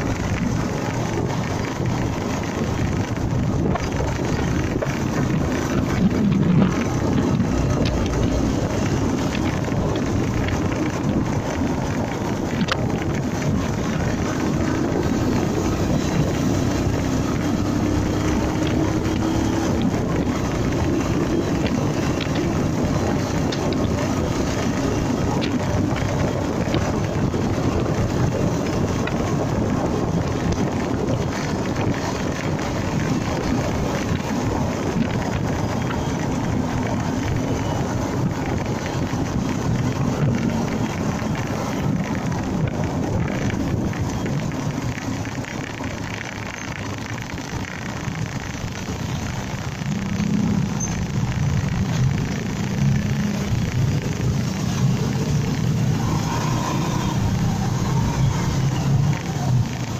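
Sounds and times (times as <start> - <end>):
motorcycle engine running: 0.0 - 59.9
wind on microphone: 0.0 - 59.9.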